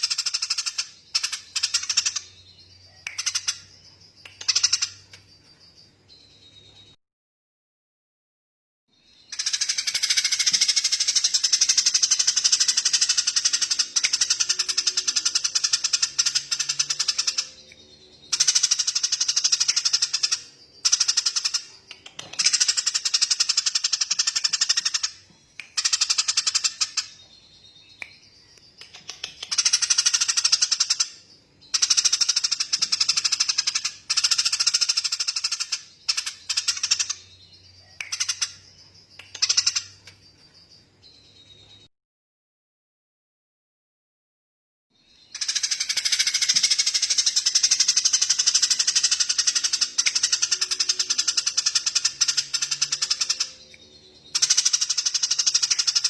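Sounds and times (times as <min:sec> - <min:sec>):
songbird rapid rattling trills: 0:45.3 - 0:53.6, 0:54.2 - 0:56.0.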